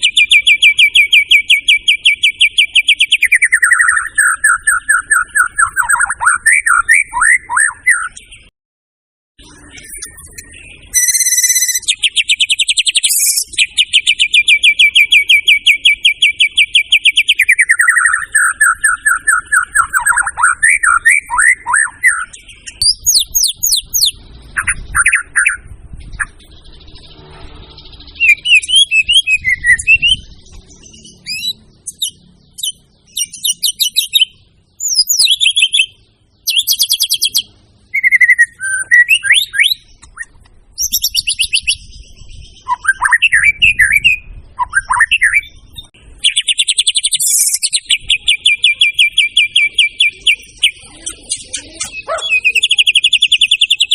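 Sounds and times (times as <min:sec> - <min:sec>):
songbird singing varied song: 0:00.0 - 0:08.5, 0:09.4 - 0:53.9.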